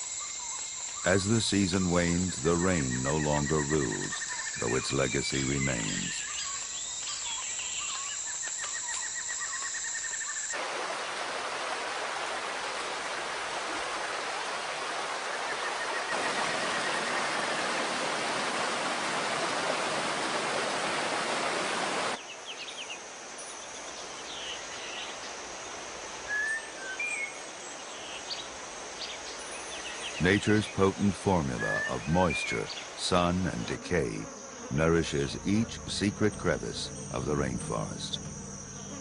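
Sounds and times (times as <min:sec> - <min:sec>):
high insect drone: 0:00.0 - 0:12.1, 0:22.2 - 0:39.0
rush of water: 0:10.6 - 0:22.2.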